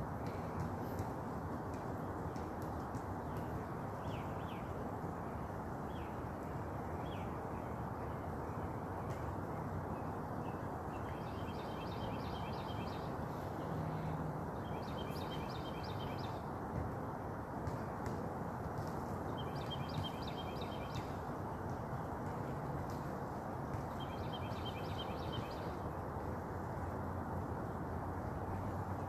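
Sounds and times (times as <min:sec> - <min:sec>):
bird chirps: 0:11.0 - 0:13.1, 0:14.6 - 0:16.4, 0:19.4 - 0:21.1, 0:24.0 - 0:25.7.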